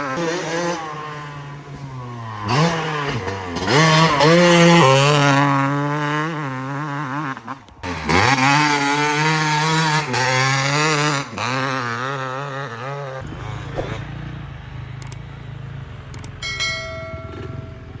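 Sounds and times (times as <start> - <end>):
two-stroke engine revving: 0.0 - 18.0
brief high tone: 16.4 - 18.0.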